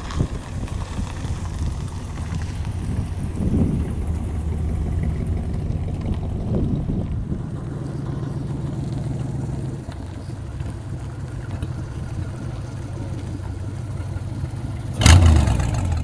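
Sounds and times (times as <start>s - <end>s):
car engine idling: 0.0s - 16.0s
loud engine burst: 15.0s - 16.0s.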